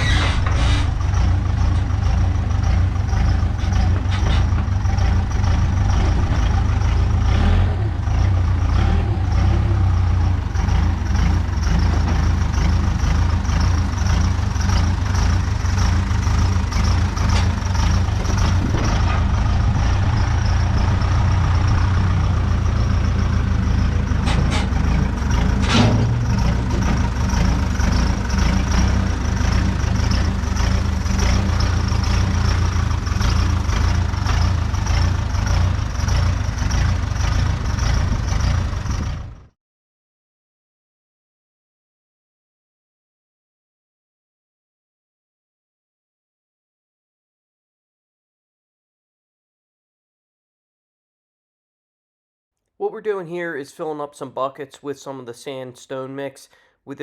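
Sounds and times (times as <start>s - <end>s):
diesel engine running: 0.0s - 39.6s.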